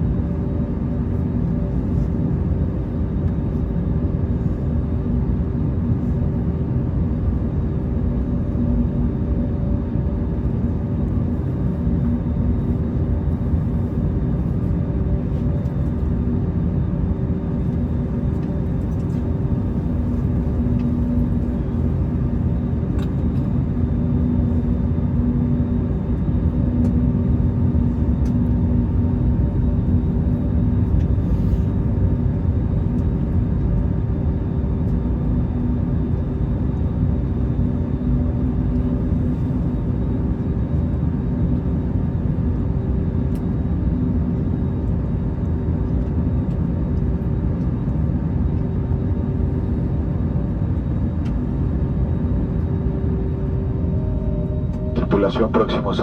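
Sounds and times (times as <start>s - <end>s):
constant multi-tone hum: 0.0s - 56.0s
jet engines rumbling: 50.9s - 56.0s.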